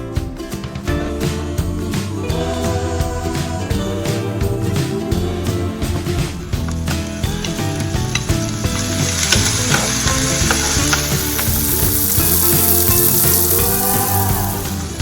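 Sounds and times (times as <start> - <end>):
stirring ticks: 6.6 - 15.0
vegetables sizzling in a pan: 6.6 - 15.0.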